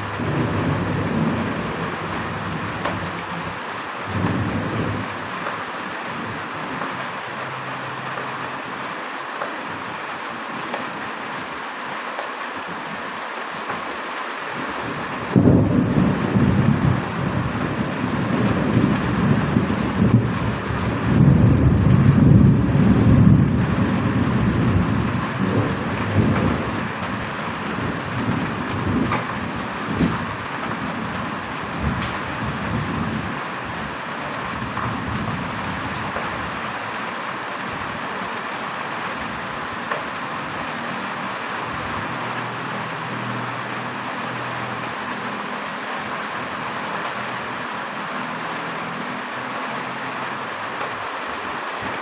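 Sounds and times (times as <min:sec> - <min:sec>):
thunder rumbling: 0:00.0 - 0:07.0, 0:14.7 - 0:36.8
heavy rain falling: 0:00.0 - 0:52.0.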